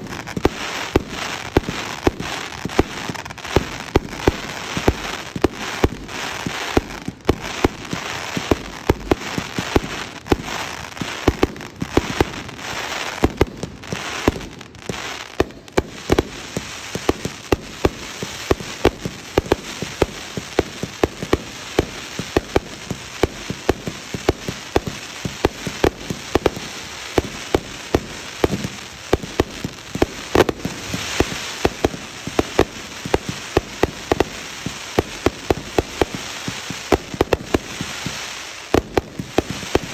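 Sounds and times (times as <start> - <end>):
crackling hiss: 0.0 - 39.9
fireworks bangs: 0.0 - 39.9.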